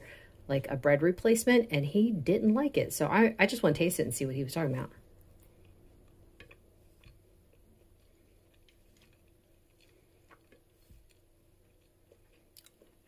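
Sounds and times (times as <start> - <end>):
faint chewing: 5.1 - 13.0.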